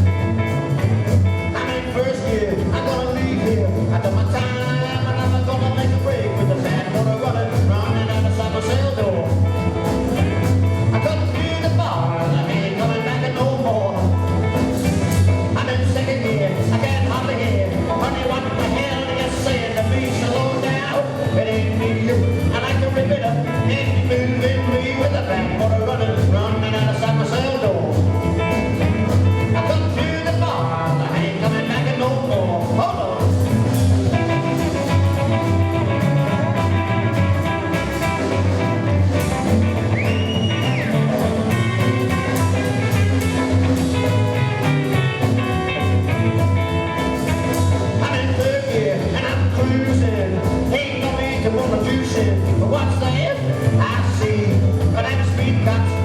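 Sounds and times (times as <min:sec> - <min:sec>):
rockabilly band playing: 0:00.0 - 0:56.0.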